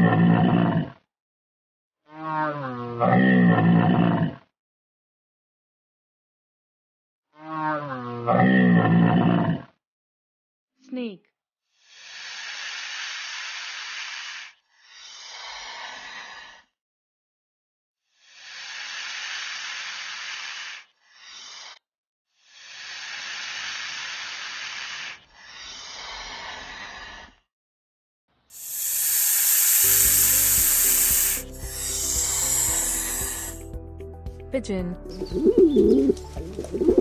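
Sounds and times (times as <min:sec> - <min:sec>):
snake hissing: 0:11.7 - 0:16.7, 0:18.1 - 0:21.8, 0:22.4 - 0:27.4, 0:28.5 - 0:33.7.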